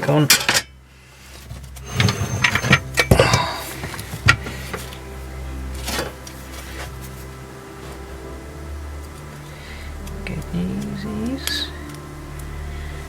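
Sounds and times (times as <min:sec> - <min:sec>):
low steady hum: 0:00.0 - 0:13.0
steel parts clinking: 0:00.2 - 0:05.0.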